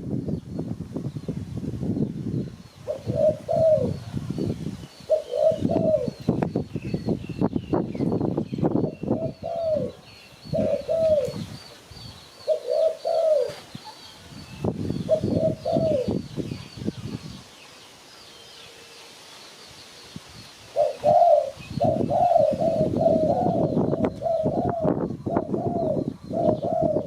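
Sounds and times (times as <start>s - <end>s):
dove cooing: 2.9s - 4.4s, 5.1s - 6.2s, 9.0s - 11.5s, 12.4s - 14.0s, 15.1s - 16.2s, 20.7s - 27.0s.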